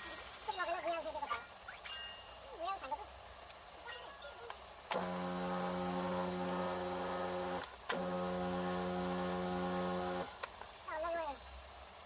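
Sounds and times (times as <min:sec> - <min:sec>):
pressure washer motor humming: 0:04.9 - 0:10.5.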